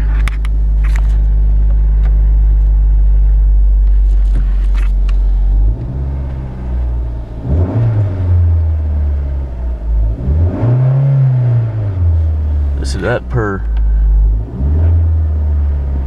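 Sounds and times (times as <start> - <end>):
car engine running: 0.0 - 16.0
engine revving: 3.2 - 16.0.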